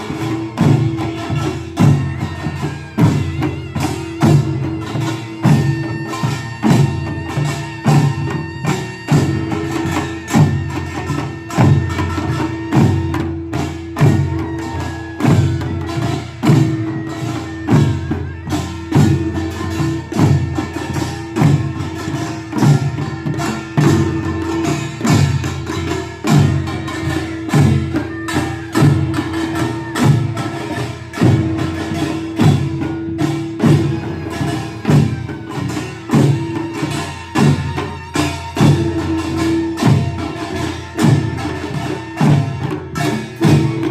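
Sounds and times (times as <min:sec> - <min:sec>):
gongs and drums beating: 0:00.0 - 0:43.9.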